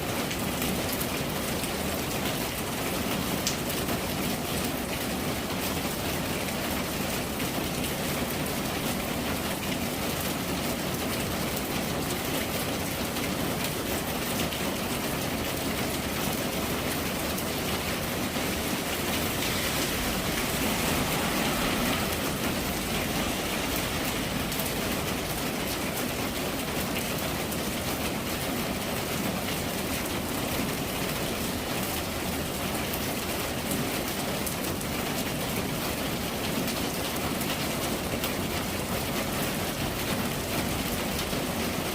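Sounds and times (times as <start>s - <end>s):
steady rain falling: 0.0s - 41.9s.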